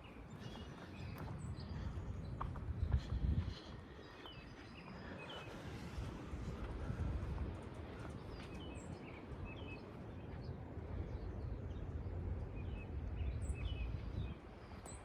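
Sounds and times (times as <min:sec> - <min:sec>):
low outdoor rumble: 0:00.0 - 0:15.0
small birds chirping: 0:00.0 - 0:15.0.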